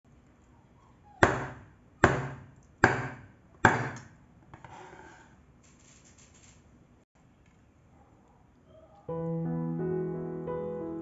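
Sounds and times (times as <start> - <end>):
knife chopping on board: 1.2 - 4.1
scraping and handling sounds: 4.4 - 6.8.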